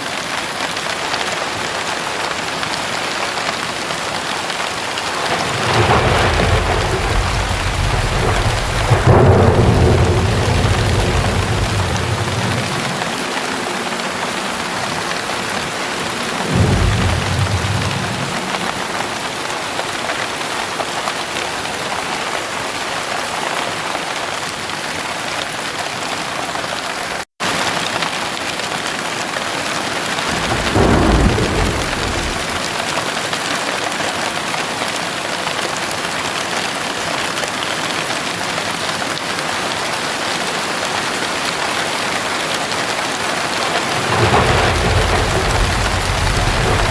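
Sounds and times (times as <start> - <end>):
heavy rain pouring: 0.0 - 46.9
low thunder rolls: 5.0 - 19.6, 30.2 - 32.9, 43.4 - 46.9.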